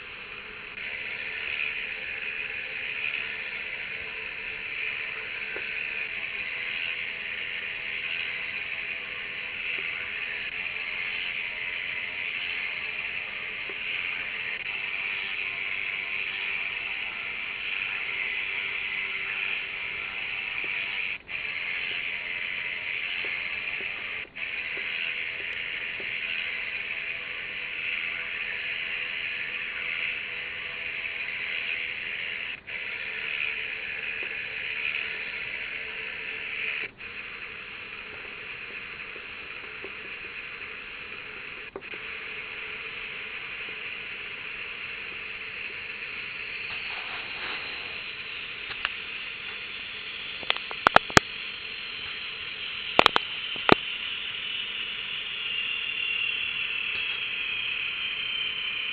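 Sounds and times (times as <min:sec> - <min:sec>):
hissy engine hum: 0:00.0 - 0:58.9
sharp clicks: 0:48.6 - 0:49.6, 0:50.3 - 0:51.4, 0:52.9 - 0:54.0.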